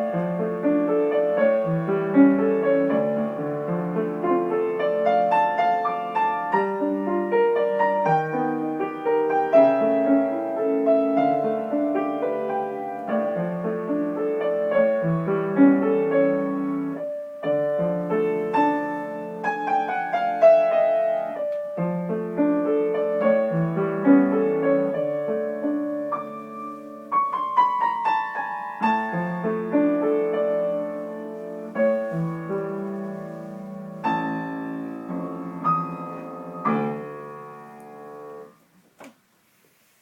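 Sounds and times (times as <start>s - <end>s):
piano chords and runs: 0.0s - 39.1s.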